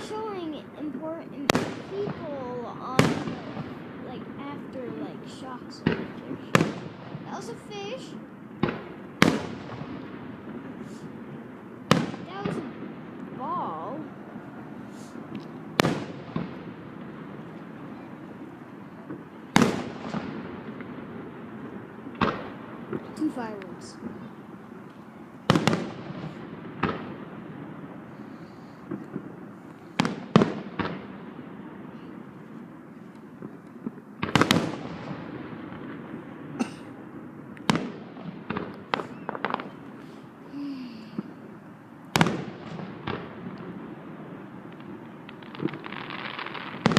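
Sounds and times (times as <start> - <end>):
small firework pops: 5.3 - 7.5, 8.6 - 11.2, 14.9 - 17.7, 19.0 - 21.0, 21.6 - 27.2, 28.2 - 31.2, 33.1 - 36.0, 37.5 - 40.2, 42.1 - 43.8, 44.7 - 46.9
firework shells bursting: 14.7 - 40.4.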